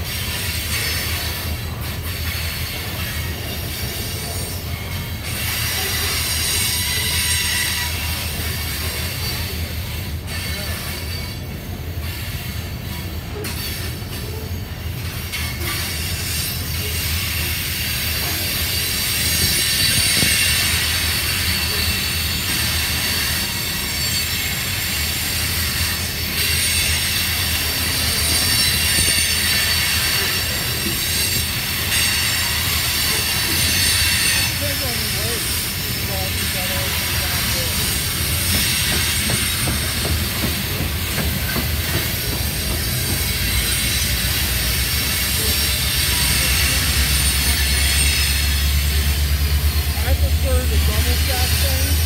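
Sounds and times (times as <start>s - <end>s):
train wheels rumbling on rail: 0.0s - 52.0s
high-pitched wheel squeal: 15.4s - 35.6s.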